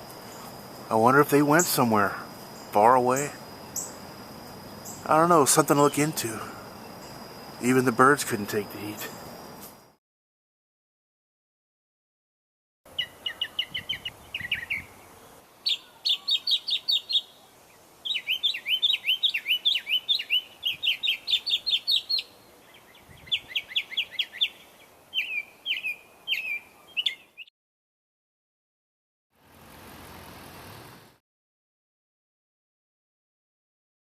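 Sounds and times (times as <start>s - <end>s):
songbird singing: 0.0s - 9.7s, 12.9s - 27.5s.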